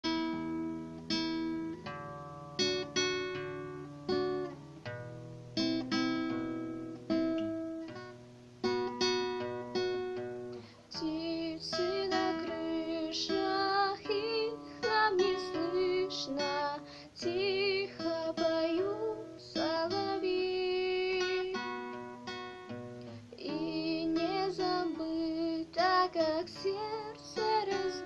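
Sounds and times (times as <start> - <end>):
acoustic guitar chords: 0.0 - 28.0
person singing: 10.9 - 22.0, 23.3 - 28.0.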